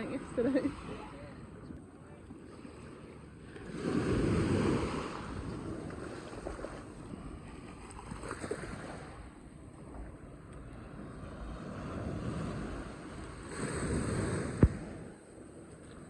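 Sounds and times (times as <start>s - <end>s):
sea waves washing onto shore: 2.4s - 9.3s, 10.4s - 16.0s
wind buffeting microphone: 3.3s - 16.0s.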